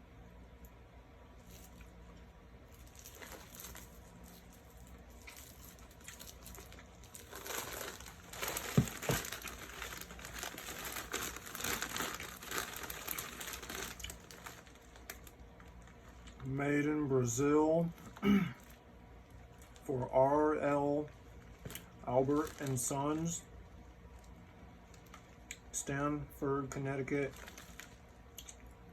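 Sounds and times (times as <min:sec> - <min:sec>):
candy wrapper crinkling: 0:02.7 - 0:16.5, 0:21.5 - 0:23.3, 0:27.3 - 0:28.6.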